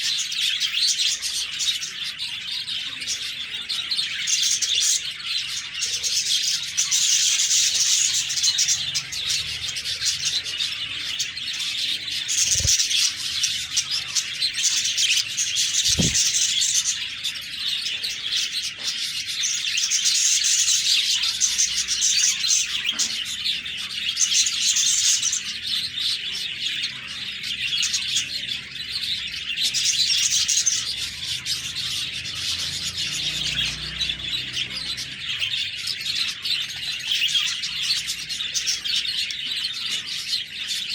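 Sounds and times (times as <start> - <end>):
budgerigars chirping and chattering: 0.0 - 40.9
low thumps: 15.9 - 16.4.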